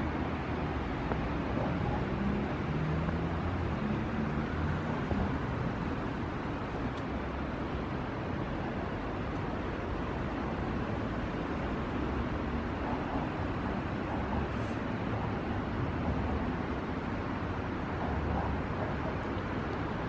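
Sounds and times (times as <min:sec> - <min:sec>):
road traffic rumble: 0:00.0 - 0:20.0
vehicle engine passing: 0:01.5 - 0:06.9.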